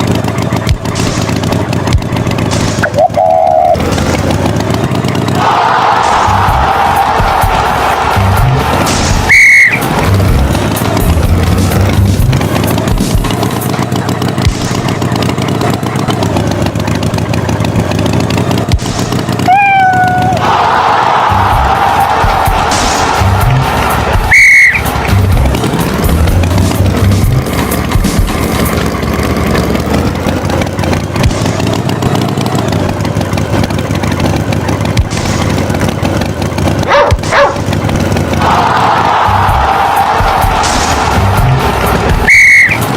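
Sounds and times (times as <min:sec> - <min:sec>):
tractor engine running: 0:00.0 - 0:42.9
held pitched tone: 0:02.8 - 0:03.8, 0:09.2 - 0:09.9, 0:24.2 - 0:25.0, 0:42.1 - 0:42.9.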